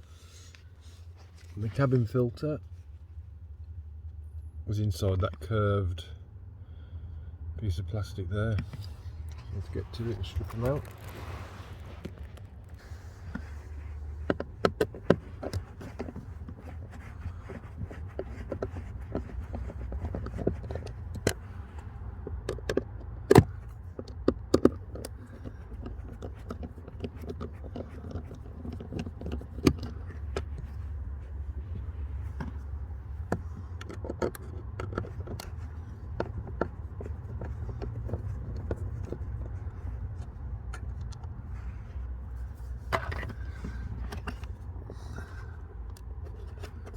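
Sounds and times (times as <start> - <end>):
steady low rumble: 0.0 - 22.3.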